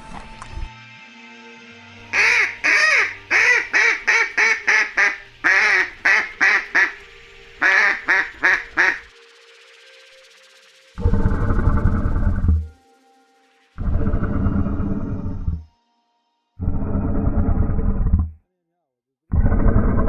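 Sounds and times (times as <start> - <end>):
faint background music: 0.0 - 16.6
animal calling: 2.1 - 9.1.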